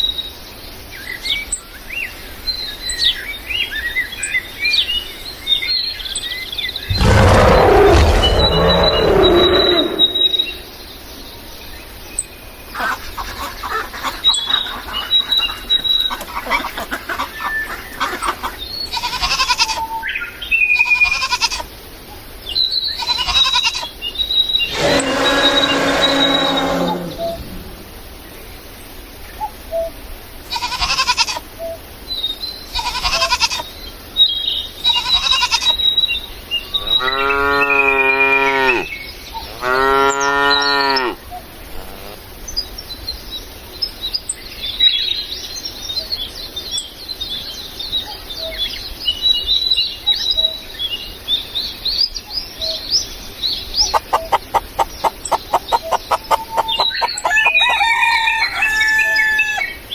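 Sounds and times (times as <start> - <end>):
rapid pulses: 6.9 - 10.7
birds chirping: 6.9 - 10.8, 24.7 - 27.9, 53.5 - 58.3
cow mooing: 24.7 - 27.7, 37.0 - 38.9.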